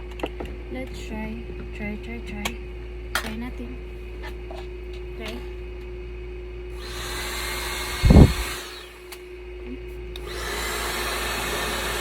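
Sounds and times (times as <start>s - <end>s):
hair dryer blowing: 6.8s - 9.0s, 10.2s - 12.0s
air buffeting microphone: 8.0s - 8.4s.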